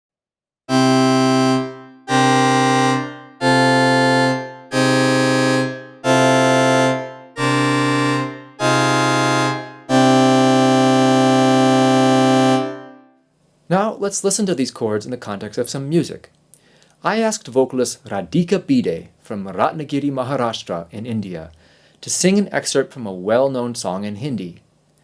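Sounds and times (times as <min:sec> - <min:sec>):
sustained synthesizer chords: 0:00.7 - 0:13.2.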